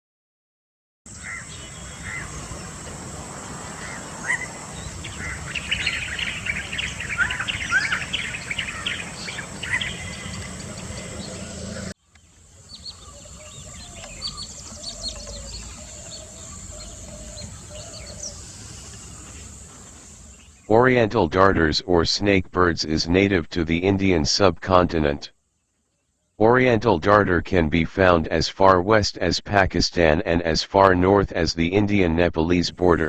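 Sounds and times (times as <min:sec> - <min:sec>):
small birds chirping: 0:01.1 - 0:20.7
low wavering bird call: 0:03.6 - 0:11.9, 0:12.5 - 0:20.6.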